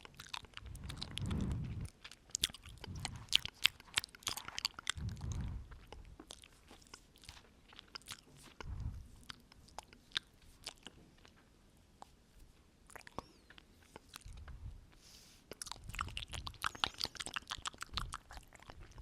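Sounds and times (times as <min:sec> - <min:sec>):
wet mouth clicks and smacks: 0:00.0 - 0:11.4, 0:15.5 - 0:19.0
breaths blowing on microphone: 0:00.6 - 0:01.9, 0:02.5 - 0:03.4, 0:05.0 - 0:06.1, 0:08.6 - 0:09.1.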